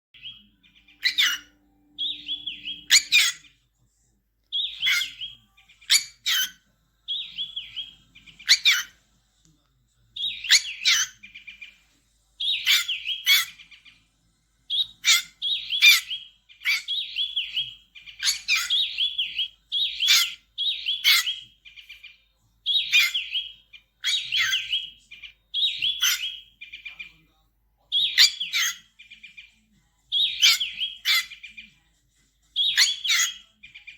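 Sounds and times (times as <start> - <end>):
bird chirping: 0.2 - 3.6, 4.4 - 9.0, 10.1 - 27.2, 27.8 - 31.8, 32.6 - 33.9.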